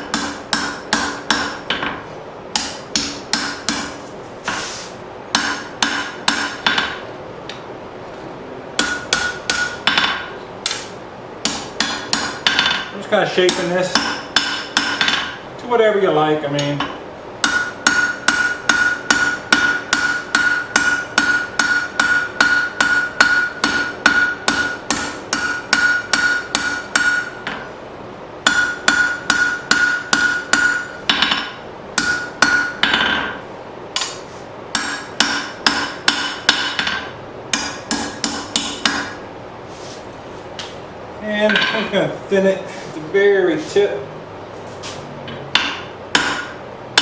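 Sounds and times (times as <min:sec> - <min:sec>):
hammer striking steel on anvil: 0:00.0 - 0:04.6, 0:05.3 - 0:07.0, 0:08.8 - 0:15.4, 0:16.6 - 0:27.7, 0:28.4 - 0:33.4, 0:34.0 - 0:39.2, 0:45.3 - 0:47.0.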